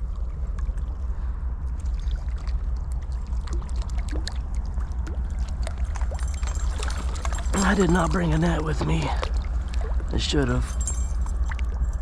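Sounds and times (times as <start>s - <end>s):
small water splashes: 0.0s - 12.0s.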